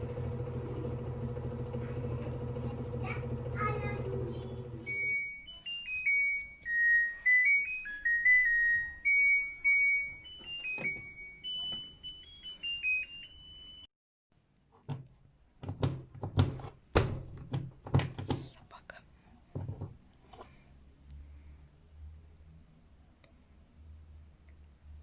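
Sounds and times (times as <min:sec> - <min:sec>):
washing machine beeping melody: 0:00.0 - 0:13.9.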